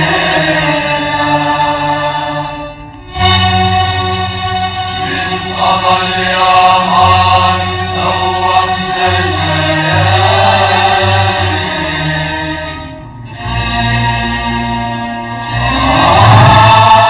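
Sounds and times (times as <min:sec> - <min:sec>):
choir chanting: 0:00.0 - 0:03.6, 0:04.9 - 0:12.9, 0:15.4 - 0:17.0
instrumental accompaniment with bass: 0:00.0 - 0:17.0.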